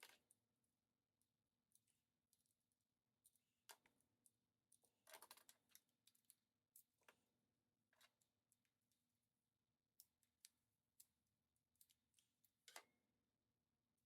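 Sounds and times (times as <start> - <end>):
clicks of small parts and tools: 11.7 - 12.9.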